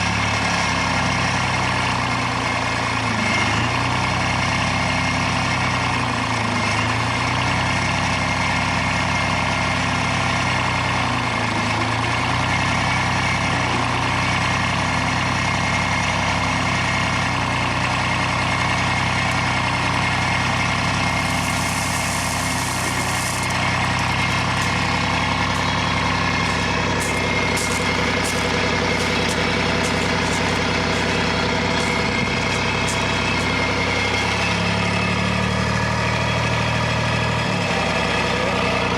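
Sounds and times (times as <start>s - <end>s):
machine engine running: 10.6s - 38.9s.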